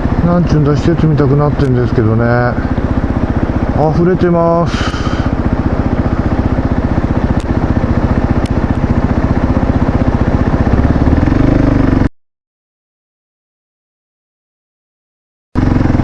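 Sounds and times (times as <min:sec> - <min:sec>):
motorcycle engine running: 0:00.0 - 0:12.1, 0:15.6 - 0:16.0.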